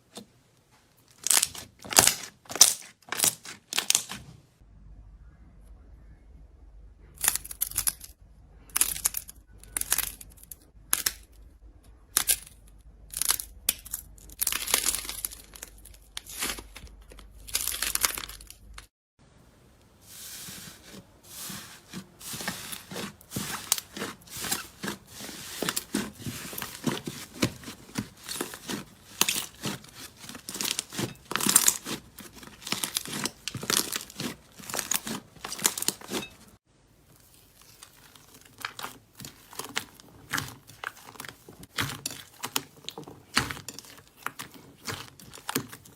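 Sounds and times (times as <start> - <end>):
slime squished and stretched: 1.1 - 4.3, 20.8 - 36.5, 37.1 - 45.9.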